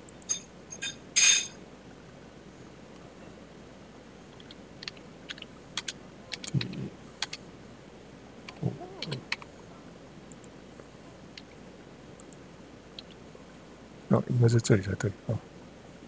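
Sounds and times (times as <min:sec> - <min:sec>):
keyboard key clicks: 0:04.4 - 0:07.4
low murmurs: 0:06.1 - 0:07.3, 0:08.3 - 0:11.4.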